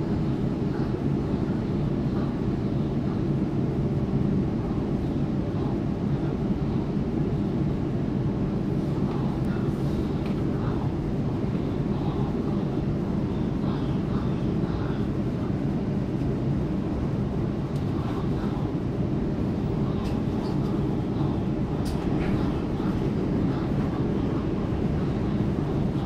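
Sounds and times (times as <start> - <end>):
train wheels rumbling on rail: 7.2 - 26.0.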